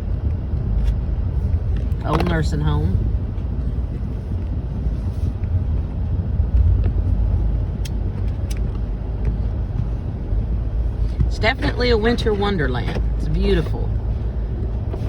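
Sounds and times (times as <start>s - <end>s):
truck rumbling on snowy road: 0.0s - 15.0s.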